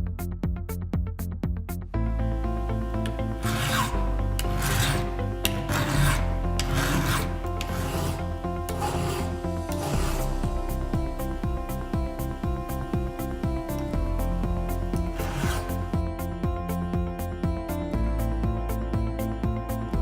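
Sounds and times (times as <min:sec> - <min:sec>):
background music: 0:00.0 - 0:20.0
file rasping on chainsaw chain: 0:03.0 - 0:10.5, 0:15.0 - 0:16.0.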